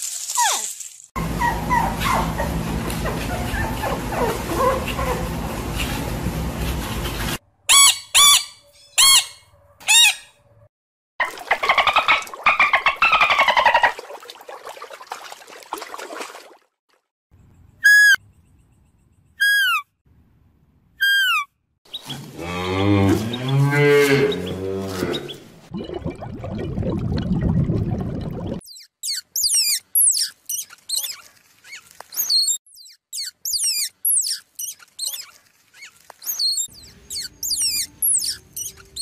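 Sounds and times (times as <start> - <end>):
animal yelps: 1.4 - 5.2, 7.7 - 10.3, 11.5 - 14.0, 19.4 - 19.9, 21.0 - 21.5, 29.0 - 39.0
dolphin whistles: 17.8 - 18.2, 19.4 - 19.9, 21.0 - 21.5, 28.7 - 35.3, 36.2 - 39.0
cow mooing: 22.3 - 25.5.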